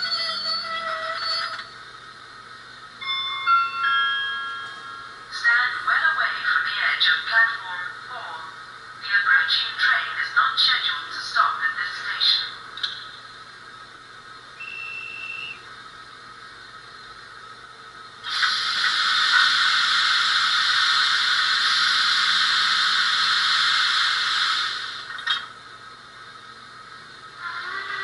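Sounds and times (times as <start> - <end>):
high steam whistle: 14.6 - 15.7, 18.2 - 25.1
steam hiss: 18.2 - 25.2.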